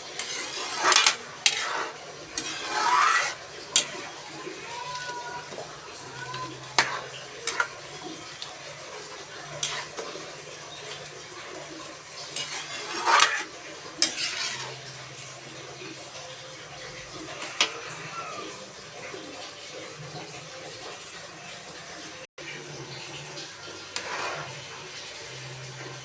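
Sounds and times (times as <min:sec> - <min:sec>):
utensil scraping pot: 0:00.0 - 0:16.0, 0:17.0 - 0:18.6, 0:23.9 - 0:25.1.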